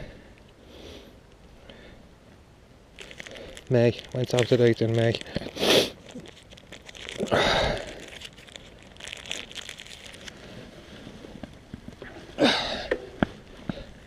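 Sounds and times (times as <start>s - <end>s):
medicine packet crinkling: 2.9s - 10.6s
packet rustling bursts: 2.9s - 12.0s.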